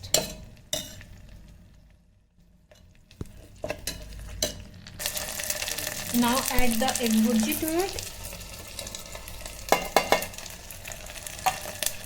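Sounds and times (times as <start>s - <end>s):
vegetables sizzling in oil: 2.6s - 12.0s
spoon knocking against pot: 9.7s - 10.4s.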